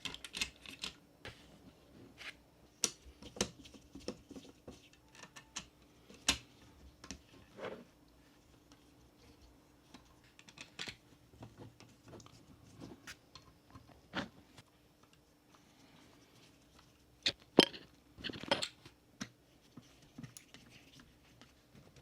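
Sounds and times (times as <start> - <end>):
small parts clicking and tapping: 0.0 - 1.0, 9.9 - 11.0.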